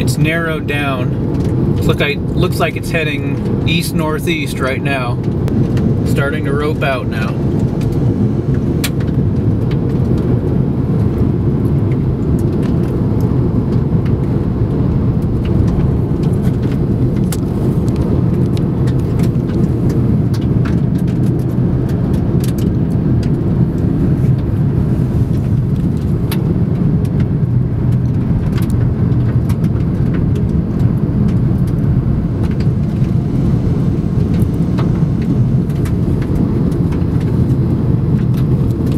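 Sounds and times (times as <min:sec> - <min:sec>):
car road rumble inside cabin: 0:00.0 - 0:38.9.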